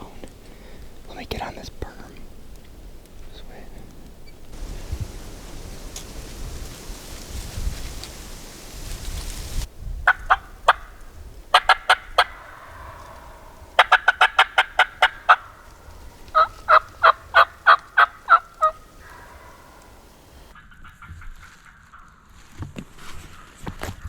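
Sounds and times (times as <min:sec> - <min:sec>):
turkey yelping: 0:04.6 - 0:20.5.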